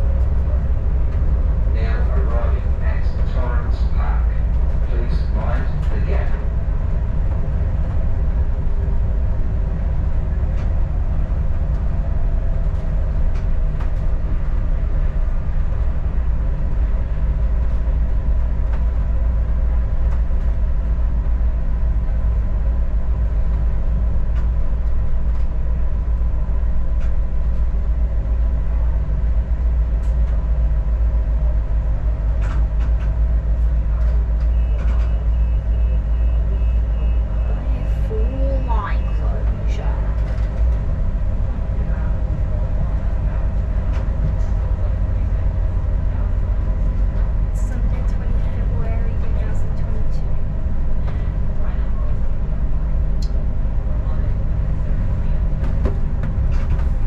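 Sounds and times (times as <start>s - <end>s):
railcar engine and rail rumble: 0.0s - 57.0s.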